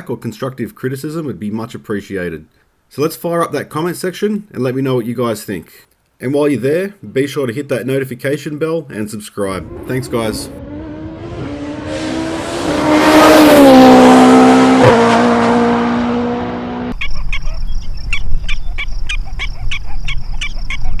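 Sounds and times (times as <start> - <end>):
race car engine at high revs: 9.5 - 17.0.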